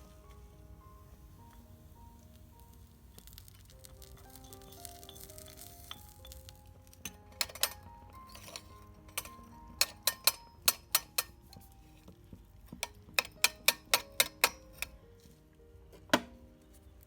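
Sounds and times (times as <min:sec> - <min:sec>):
soft background music: 0:00.0 - 0:17.0
metal utensils tapping hard surface: 0:07.1 - 0:11.6, 0:12.7 - 0:15.0.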